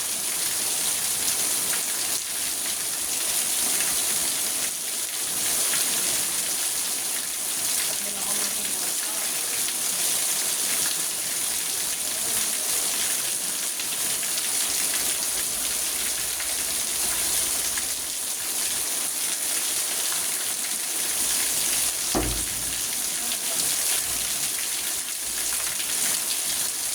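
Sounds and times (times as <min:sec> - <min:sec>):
rain drumming on car roof: 0:21.8 - 0:26.4.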